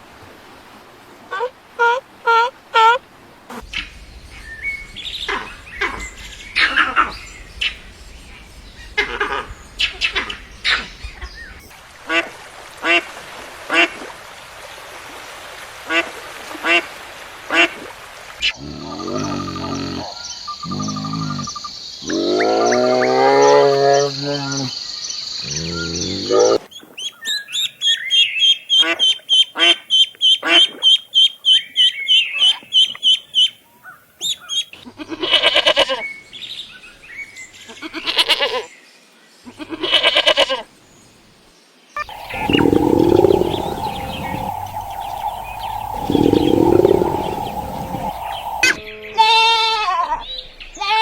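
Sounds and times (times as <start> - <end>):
drawn-out pitched animal calls: 42.0 - 49.4
short repeated animal calls: 42.0 - 49.4
separate animal calls: 42.0 - 49.5.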